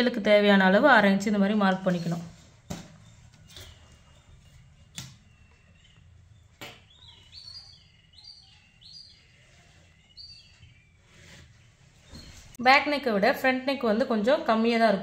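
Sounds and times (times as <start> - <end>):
small bird chirping: 3.0 - 12.6.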